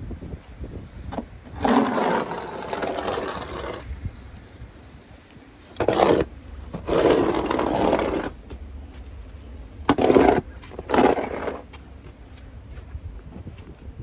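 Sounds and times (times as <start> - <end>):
snow shovel scraping pavement: 1.5 - 3.9, 5.6 - 12.1.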